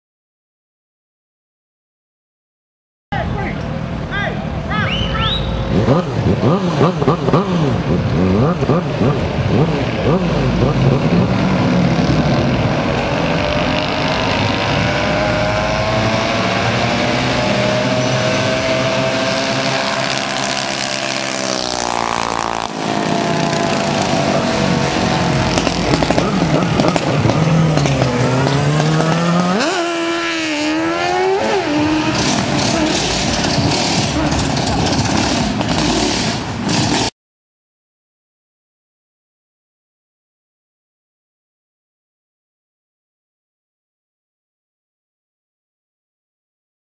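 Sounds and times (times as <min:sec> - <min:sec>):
minibike engines racing: 0:03.2 - 0:37.1.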